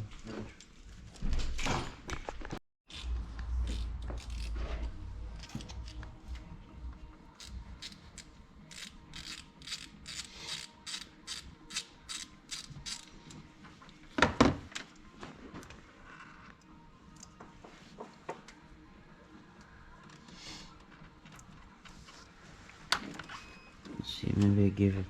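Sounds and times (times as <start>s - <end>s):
ratchet wrench clicking: 3.7s - 4.6s, 7.4s - 13.1s.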